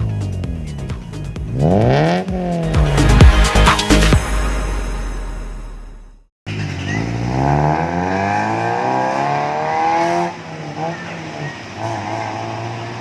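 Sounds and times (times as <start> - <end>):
car engine revving and idling: 0.0 - 13.0.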